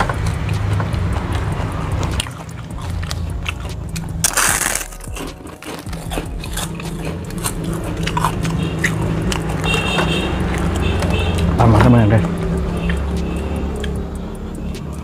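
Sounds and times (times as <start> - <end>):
crunchy chewing: 0.0 - 11.6
steady low hum: 1.0 - 10.6.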